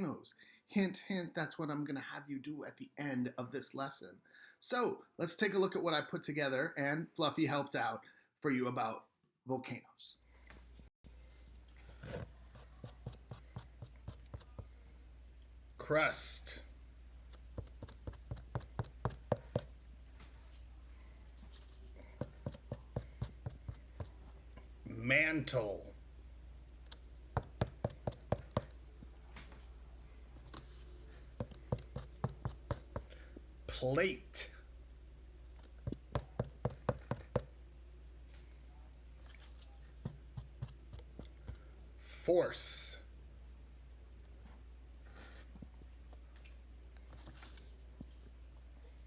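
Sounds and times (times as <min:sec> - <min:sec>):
steady low hum: 0:11.1 - 0:42.0.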